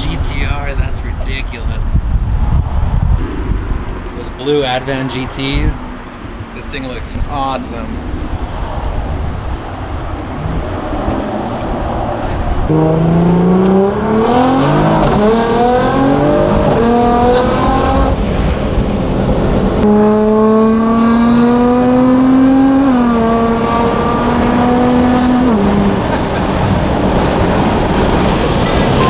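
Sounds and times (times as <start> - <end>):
car engine accelerating hard: 7.3 - 29.0.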